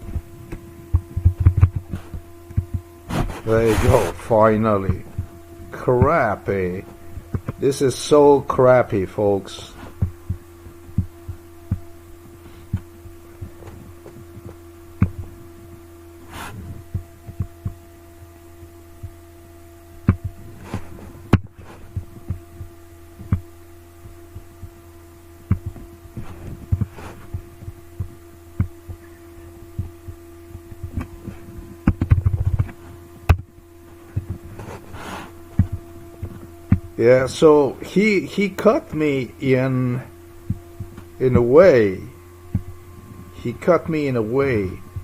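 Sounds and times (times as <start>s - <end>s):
low electrical hum: 0.0s - 45.0s.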